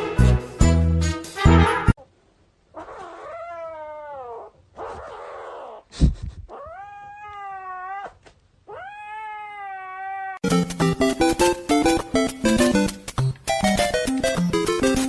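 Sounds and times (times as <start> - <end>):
cat yowling: 2.8 - 5.8, 6.5 - 10.4.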